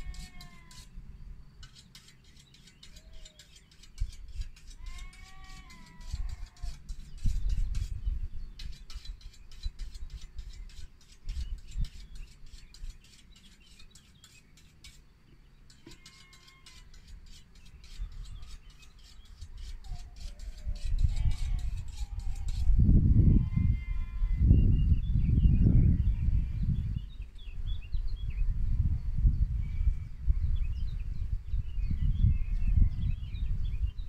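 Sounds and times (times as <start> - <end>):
chirping bird calls: 0.0 - 1.0, 1.6 - 22.8
wind rumble on microphone: 3.8 - 13.0, 17.7 - 34.0.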